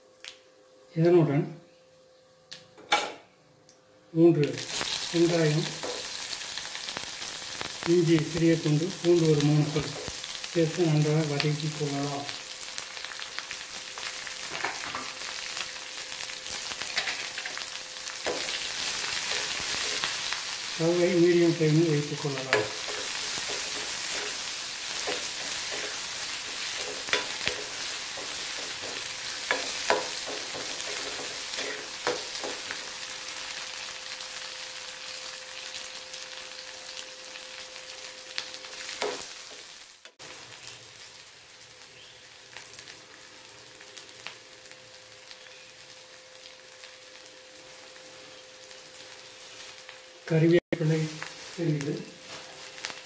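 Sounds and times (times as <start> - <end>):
onions sizzling in oil: 4.5 - 53.0
ladle stirring and clinking on pan: 25.0 - 32.6.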